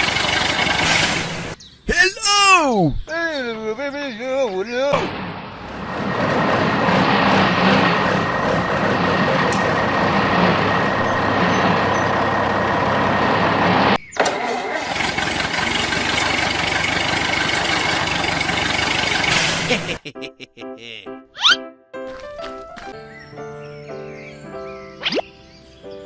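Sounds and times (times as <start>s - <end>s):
engine running loudly: 5.0s - 19.4s.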